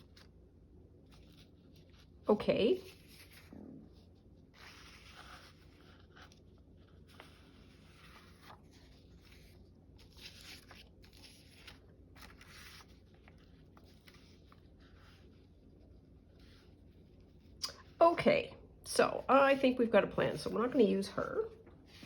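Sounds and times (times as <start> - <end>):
paper rustling and scraping: 1.0 - 17.6.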